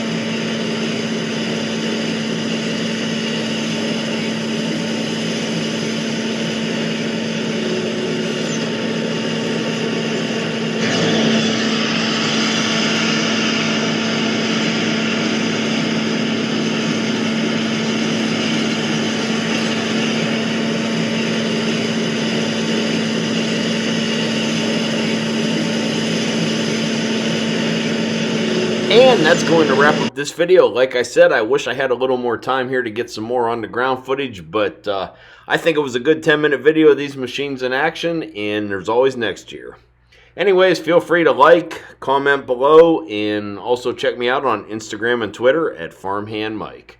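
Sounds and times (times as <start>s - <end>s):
machinery humming: 0.0s - 30.3s.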